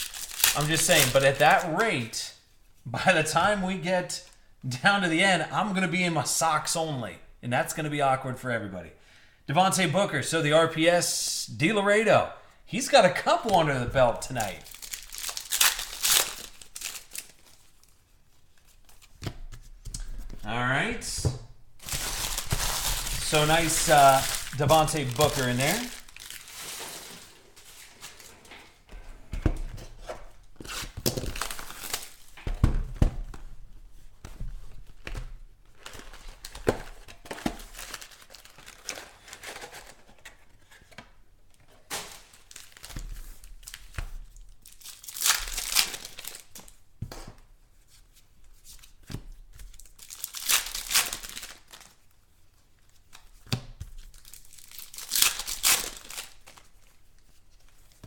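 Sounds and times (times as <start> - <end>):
wrappers tearing and crinkling: 0.0 - 2.1, 14.2 - 18.0, 21.8 - 28.3, 30.6 - 32.4, 35.7 - 40.1, 41.8 - 46.8, 49.7 - 52.0, 54.0 - 57.0.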